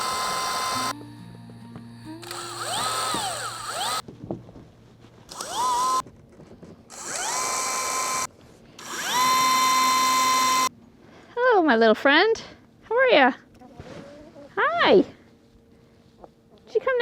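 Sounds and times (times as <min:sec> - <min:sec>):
power drill whining: 0:00.0 - 0:01.0, 0:02.2 - 0:04.0, 0:05.3 - 0:06.0, 0:06.9 - 0:10.7.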